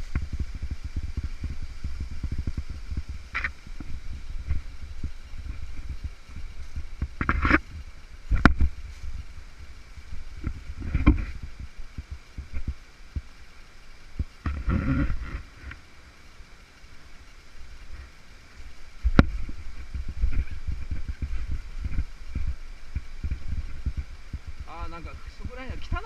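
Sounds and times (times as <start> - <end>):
rush of stream water: 0.0 - 26.0
camera being knocked about: 7.0 - 7.6.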